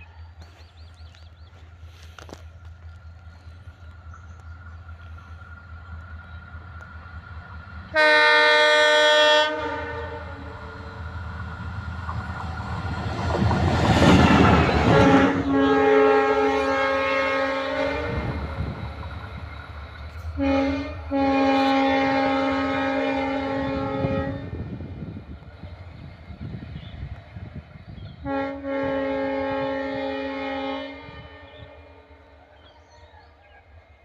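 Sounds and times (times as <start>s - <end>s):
moving train running noise: 0.0s - 34.0s
locomotive horn blasts: 7.9s - 11.0s, 14.3s - 18.6s, 20.4s - 24.7s, 28.2s - 32.2s.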